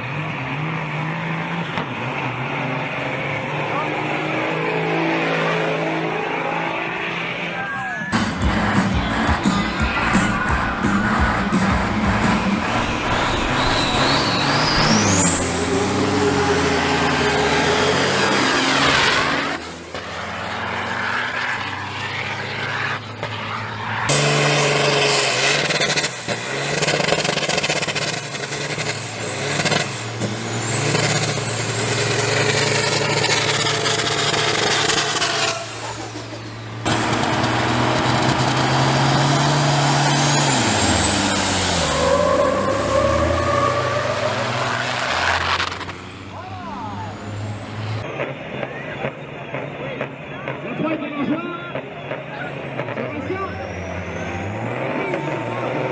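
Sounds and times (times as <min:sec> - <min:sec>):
diesel truck engines accelerating: 0:00.0 - 0:55.9
turbo whistle: 0:13.3 - 0:16.2.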